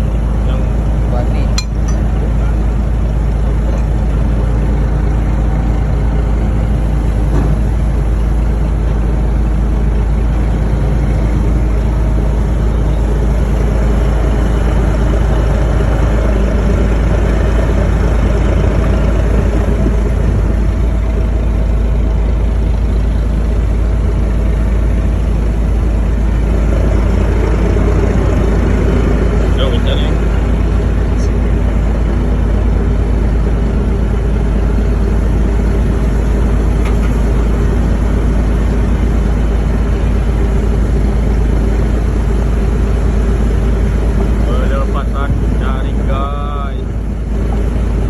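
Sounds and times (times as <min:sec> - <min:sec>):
diesel boat engine humming: 0:00.0 - 0:48.0.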